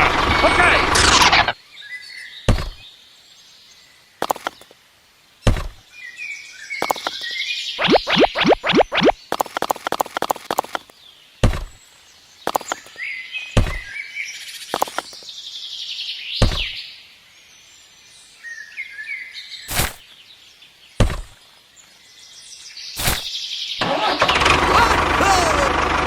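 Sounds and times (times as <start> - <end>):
birds chirping: 0.2 - 23.8
knocks or thuds: 2.5 - 2.8, 5.5 - 5.8, 11.4 - 11.8, 13.6 - 13.9, 16.4 - 16.8, 21.0 - 21.4.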